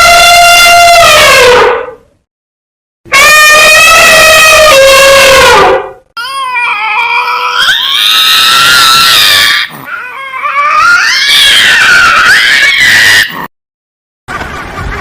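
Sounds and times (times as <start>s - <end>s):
high-pitched animal call: 3.1s - 13.4s
whining animal call: 3.1s - 13.4s.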